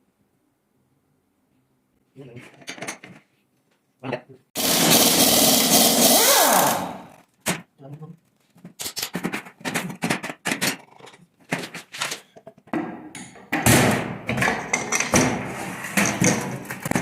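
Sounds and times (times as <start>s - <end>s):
metal tools knocking and clinking: 14.4s - 15.2s.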